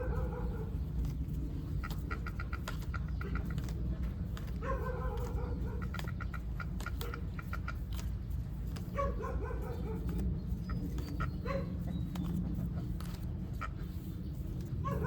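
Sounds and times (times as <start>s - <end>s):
steady low rumble: 0.0s - 15.0s
animal calls: 1.6s - 3.9s, 4.5s - 8.1s.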